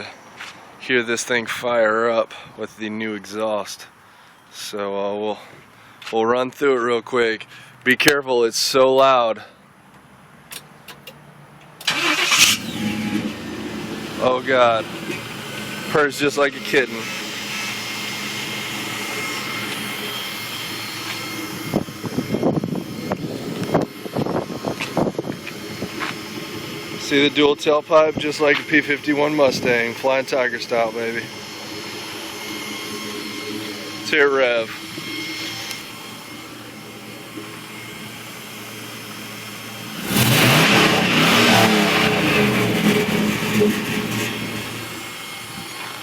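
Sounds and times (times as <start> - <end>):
engine idling: 11.0 - 46.0.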